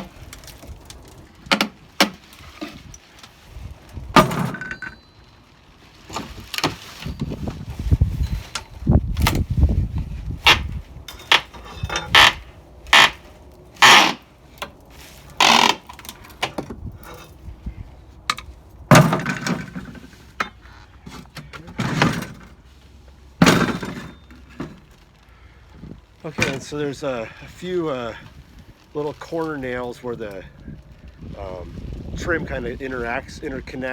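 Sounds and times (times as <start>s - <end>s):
wood trim knocked and pried off: 1.4s - 2.9s, 4.1s - 4.8s, 10.4s - 13.2s, 18.9s - 20.2s, 23.4s - 24.9s.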